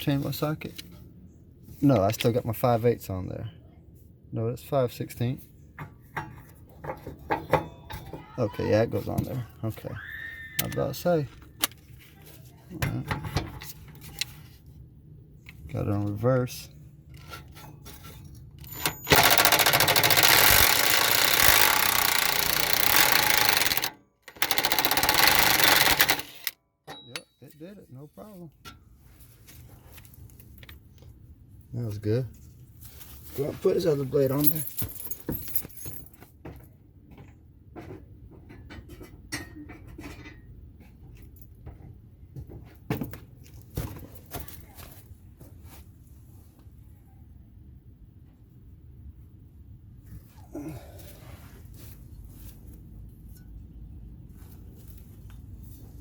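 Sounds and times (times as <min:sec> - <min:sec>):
metallic clinks and knocks: 0:17.1 - 0:27.6, 0:34.4 - 0:36.3
impact driver hammering: 0:18.8 - 0:27.3.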